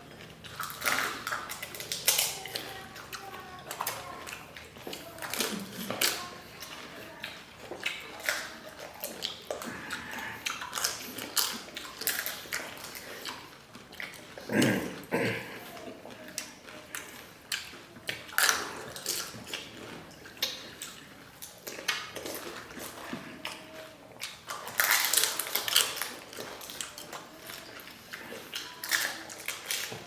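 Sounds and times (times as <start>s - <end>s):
wet chewing: 0.0s - 30.0s.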